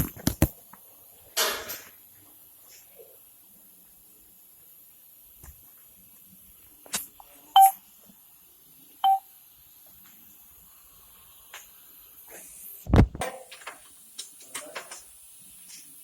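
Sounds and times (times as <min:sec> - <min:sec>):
short electronic beeps: 0:07.6 - 0:07.8, 0:09.0 - 0:09.2.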